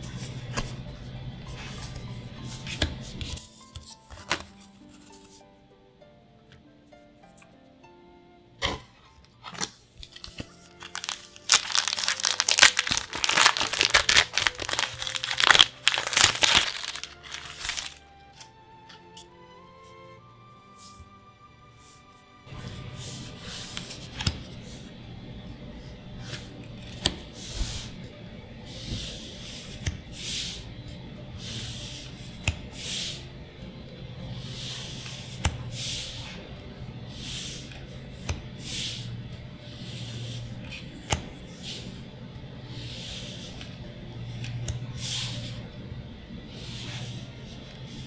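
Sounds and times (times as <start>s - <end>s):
plastic wrapper crinkling: 10.5s - 18.0s.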